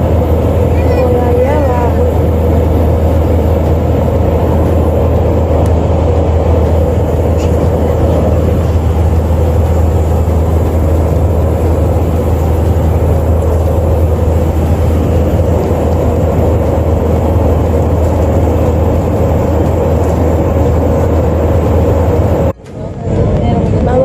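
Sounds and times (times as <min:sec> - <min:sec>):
airliner cabin drone: 0:00.0 - 0:24.0.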